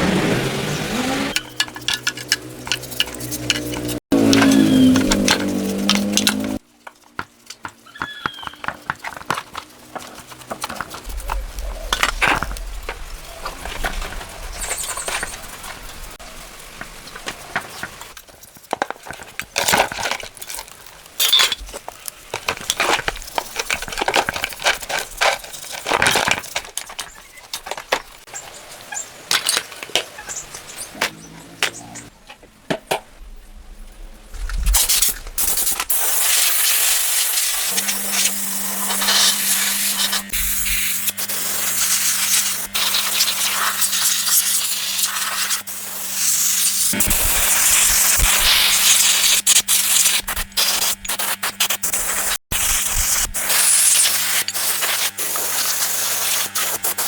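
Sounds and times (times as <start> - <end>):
metal scraping: 0.0 - 6.6, 37.4 - 44.7
metal tools clinking and knocking: 1.4 - 6.6, 19.6 - 28.0.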